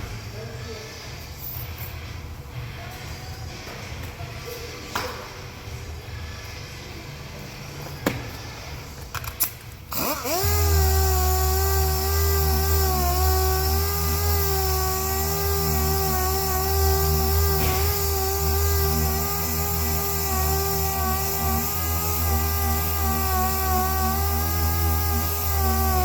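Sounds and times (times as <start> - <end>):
power tool whining: 9.9 - 26.0.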